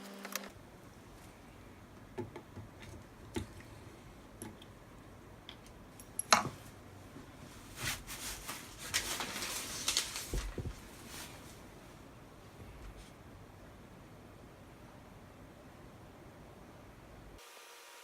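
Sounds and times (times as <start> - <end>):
rustling handling noise: 6.3 - 12.0.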